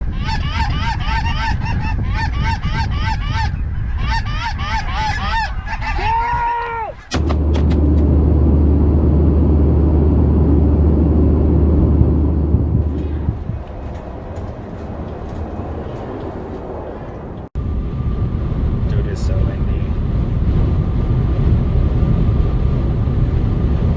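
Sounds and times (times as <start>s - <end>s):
wind buffeting microphone: 7.1s - 23.9s.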